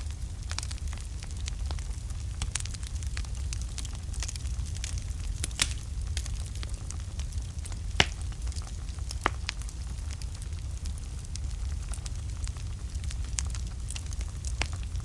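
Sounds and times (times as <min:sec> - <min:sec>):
burning logs crackling and popping: 0:00.0 - 0:15.0
wood fire rumbling: 0:00.0 - 0:15.0.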